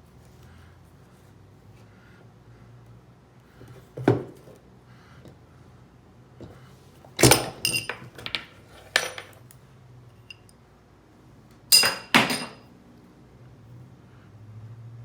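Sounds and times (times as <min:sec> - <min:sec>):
metal pieces clinking: 0:07.2 - 0:09.4, 0:11.7 - 0:12.6.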